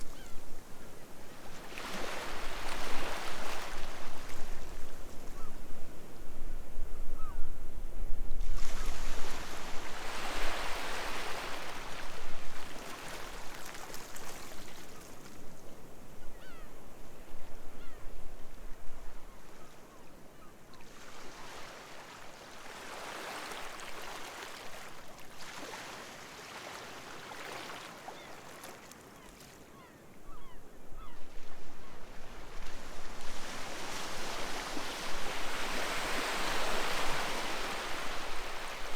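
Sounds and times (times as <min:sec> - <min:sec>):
sea waves breaking on a beach: 0:00.0 - 0:06.2, 0:08.4 - 0:16.4, 0:18.5 - 0:38.9
gull calls: 0:07.2 - 0:07.5, 0:16.3 - 0:16.7.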